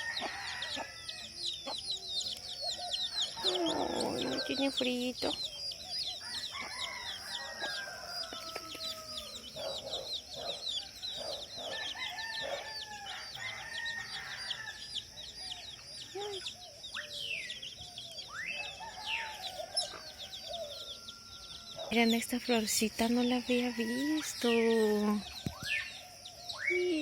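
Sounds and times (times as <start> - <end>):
roosters crowing: 0.0 - 5.2, 6.1 - 26.4
high-pitched chick chirping: 0.0 - 22.1, 23.9 - 27.0
hen clucking: 3.2 - 5.4.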